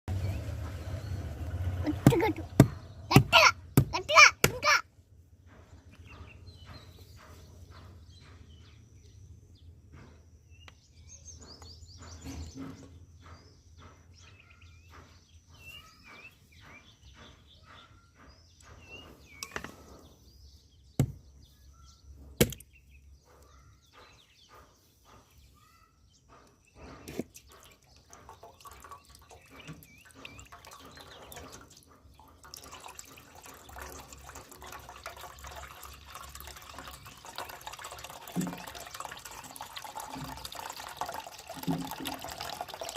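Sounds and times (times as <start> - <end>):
birds chirping: 0.1 - 4.8, 5.4 - 42.9
sharp knocks: 2.0 - 4.8, 21.0 - 21.3, 22.4 - 22.7
small drips and clicks: 27.4 - 42.9
running water rushing: 32.4 - 42.9.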